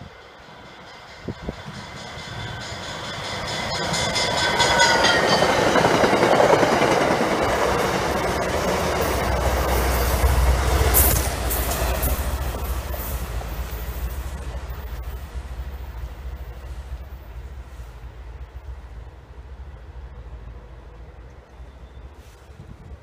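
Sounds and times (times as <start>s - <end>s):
deep train rumble: 0.0s - 23.0s
train wheels clattering over rails: 0.5s - 17.2s.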